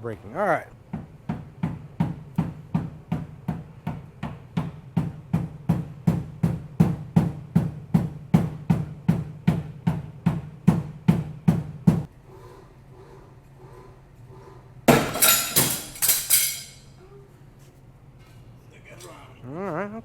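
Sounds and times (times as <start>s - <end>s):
hammer on sheet metal: 14.9s - 16.8s.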